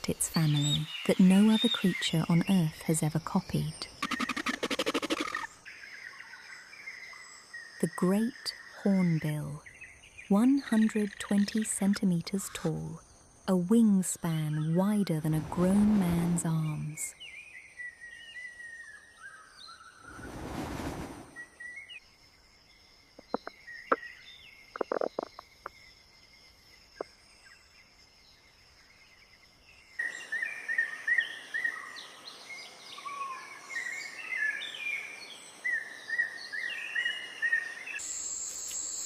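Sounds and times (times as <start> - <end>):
small birds chirping: 0.0 - 20.3, 22.6 - 38.1
whoosh: 20.0 - 21.5.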